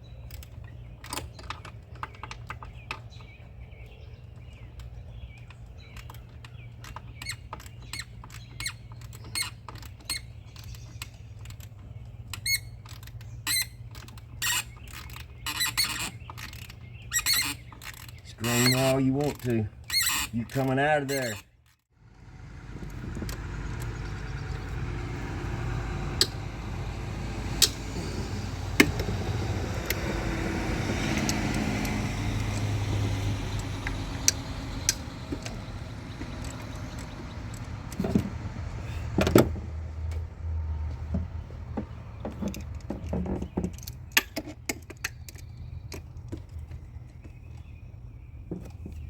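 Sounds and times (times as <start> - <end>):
tools and metal parts clicking: 0.0 - 3.5, 4.4 - 21.8, 30.8 - 38.3, 42.2 - 47.7.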